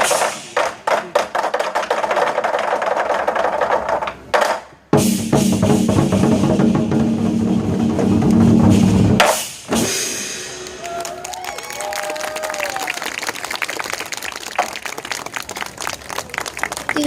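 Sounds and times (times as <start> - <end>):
war drums rolling: 0.0 - 10.8.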